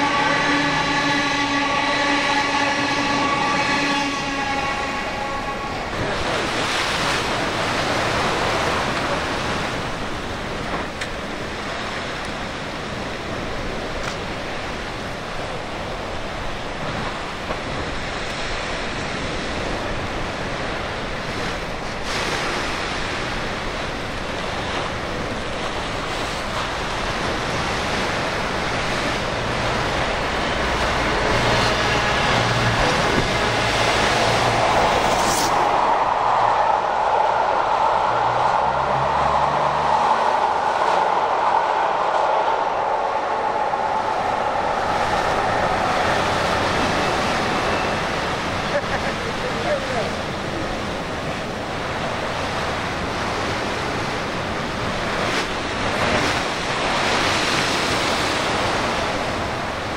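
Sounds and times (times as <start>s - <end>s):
steady pitched train tone: 0.0s - 6.6s, 23.3s - 59.9s
surf: 0.0s - 59.9s
train rushing on rails: 0.0s - 59.9s.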